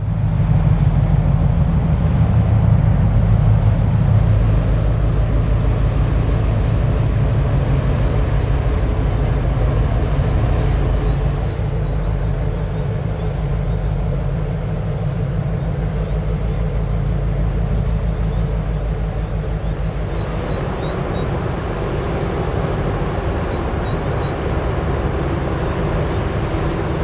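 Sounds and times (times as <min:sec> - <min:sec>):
broad noisy water wash: 0:00.0 - 0:27.0
ship diesel engines droning: 0:00.0 - 0:27.0.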